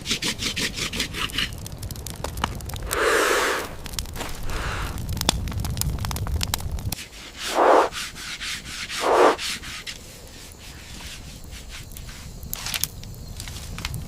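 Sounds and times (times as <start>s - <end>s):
sharp clicks and crackles: 1.3s - 7.0s, 12.4s - 14.0s.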